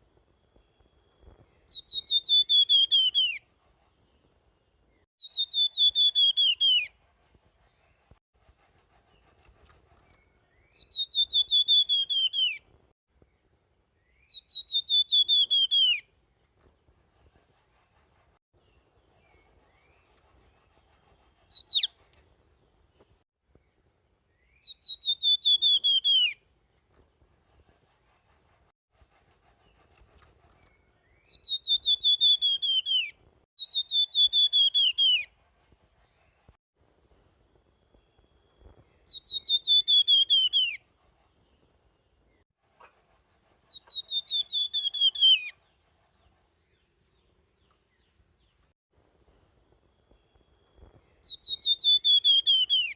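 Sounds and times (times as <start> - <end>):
songbird whistling flute-like phrases: 1.6 - 3.4, 5.2 - 7.0, 10.2 - 12.6, 14.0 - 16.1, 21.5 - 22.0, 24.3 - 26.4, 30.6 - 35.3, 39.0 - 40.8, 43.7 - 45.6, 51.2 - 52.9.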